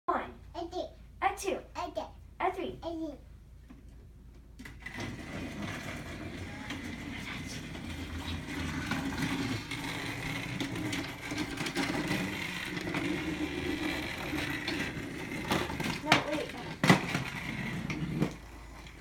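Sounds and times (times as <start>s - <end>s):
toy train whirring: 4.6s - 19.0s.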